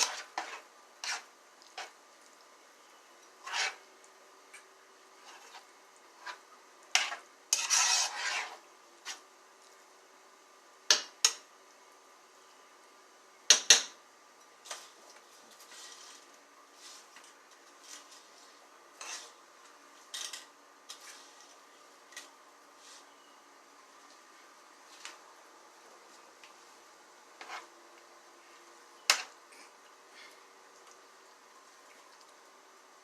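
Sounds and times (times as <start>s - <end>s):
utensil scraping pot: 0.0s - 2.0s, 3.3s - 3.9s, 5.1s - 9.2s, 18.9s - 19.4s, 27.4s - 27.7s.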